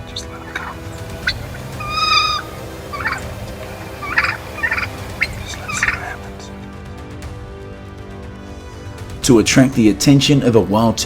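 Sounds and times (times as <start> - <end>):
turkey call: 0.0 - 6.6
turkeys gobbling: 0.0 - 6.6.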